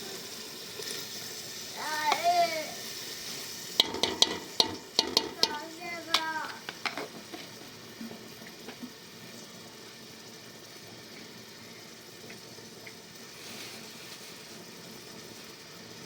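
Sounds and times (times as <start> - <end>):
faint steady hiss: 0.0 - 16.0
sharp clicks and knocks: 3.8 - 7.0.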